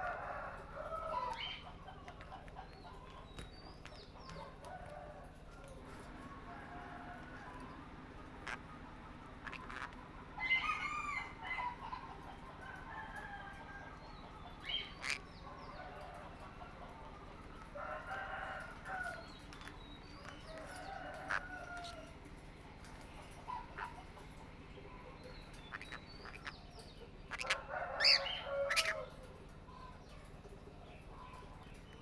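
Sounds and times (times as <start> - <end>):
low background hum: 0.0 - 32.0
parrots squawking and chirping: 8.2 - 12.1, 14.6 - 15.3, 19.0 - 22.0, 23.4 - 24.0, 25.4 - 29.2.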